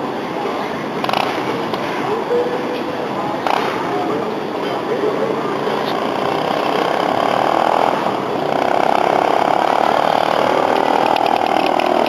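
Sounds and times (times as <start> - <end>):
motorcycle engine running: 5.4 - 12.0.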